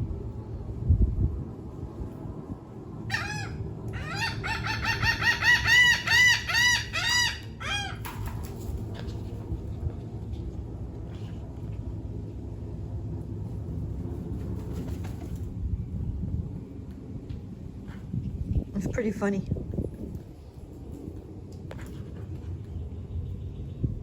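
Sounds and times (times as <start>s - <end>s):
bird calling: 3.1s - 8.2s.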